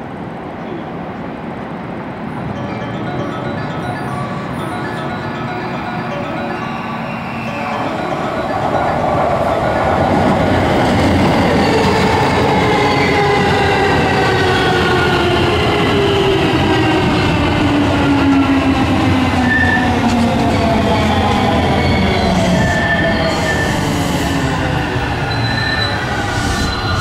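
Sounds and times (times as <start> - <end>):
train wheels rumbling on rail: 7.7 - 27.0.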